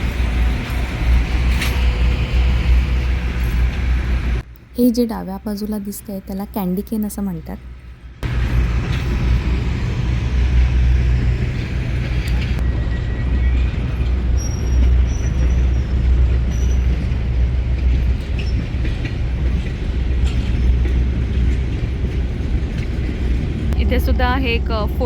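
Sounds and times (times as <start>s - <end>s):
large engine rumbling: 0.0s - 4.5s.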